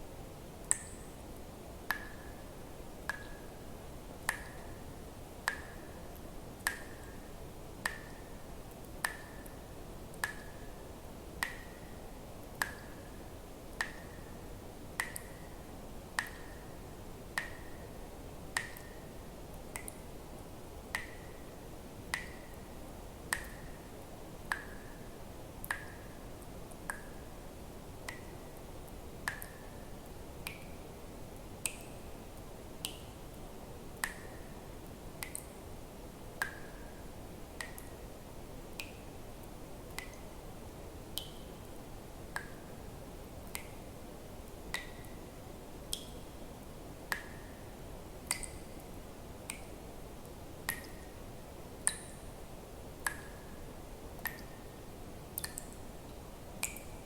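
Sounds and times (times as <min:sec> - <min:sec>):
faint steady hiss: 0:00.0 - 0:57.0
water drops plinking into water: 0:00.6 - 0:01.2, 0:01.9 - 0:02.4, 0:03.1 - 0:03.5, 0:04.2 - 0:04.7, 0:05.4 - 0:07.2, 0:07.8 - 0:08.3, 0:09.0 - 0:10.7, 0:11.4 - 0:13.1, 0:15.0 - 0:15.5, 0:16.2 - 0:16.6, 0:17.4 - 0:17.8, 0:18.5 - 0:19.0, 0:19.7 - 0:20.0, 0:20.9 - 0:21.4, 0:22.1 - 0:22.6, 0:23.3 - 0:23.8, 0:25.6 - 0:26.1, 0:29.2 - 0:29.8, 0:34.0 - 0:34.4, 0:35.2 - 0:35.6, 0:37.6 - 0:37.9, 0:44.7 - 0:45.2, 0:45.9 - 0:46.3, 0:48.2 - 0:48.8, 0:50.7 - 0:51.1, 0:51.8 - 0:52.2, 0:53.0 - 0:53.4, 0:54.2 - 0:54.6, 0:55.4 - 0:55.8, 0:56.6 - 0:57.0.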